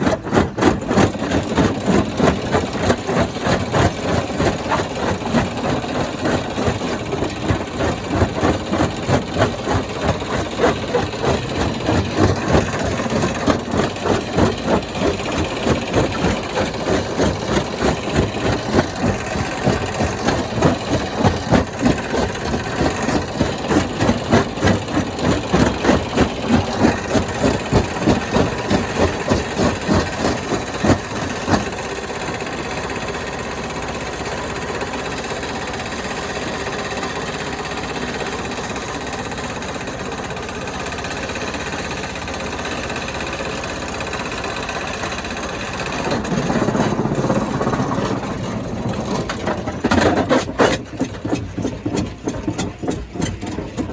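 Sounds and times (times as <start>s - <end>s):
stone crusher pulsing beat: 0.0s - 32.5s, 45.7s - 53.9s
steady mechanical hum: 0.0s - 53.9s.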